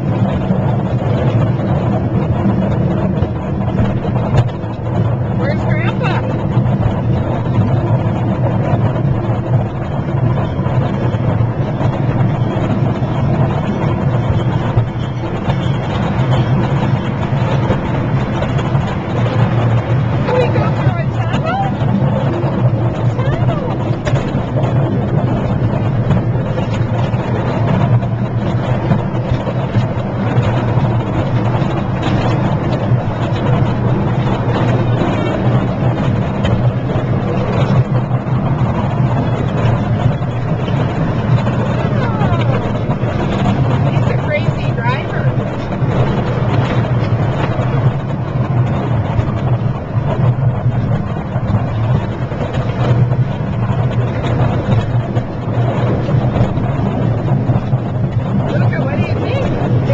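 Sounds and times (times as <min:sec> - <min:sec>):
ride running noise: 0:00.0 - 0:59.9
small train engine droning: 0:00.0 - 0:59.9
train rattling: 0:00.0 - 0:59.9.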